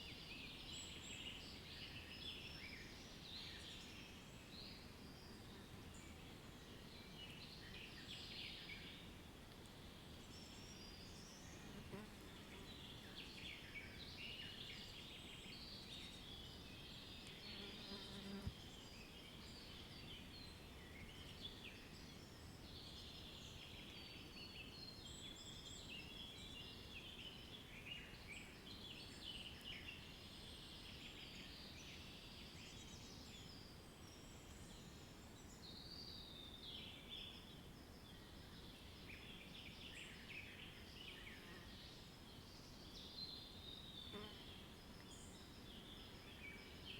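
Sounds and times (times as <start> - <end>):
low background hiss: 0.0 - 46.9.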